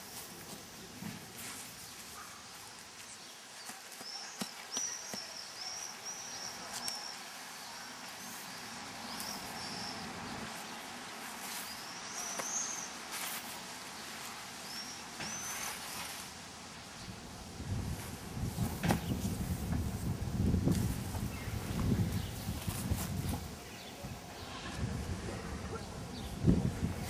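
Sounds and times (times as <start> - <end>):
faint rustles: 0.0 - 3.2, 8.0 - 16.4, 17.6 - 25.8
small bird singing: 1.8 - 10.6, 11.5 - 13.0.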